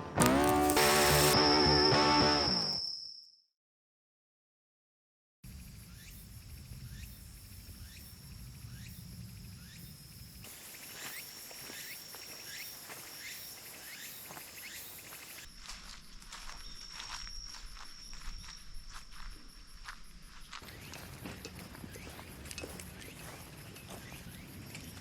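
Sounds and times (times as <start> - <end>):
cicadas calling: 0.2 - 2.9, 5.5 - 25.0
high-pitched insect drone: 0.2 - 3.3, 5.6 - 24.4.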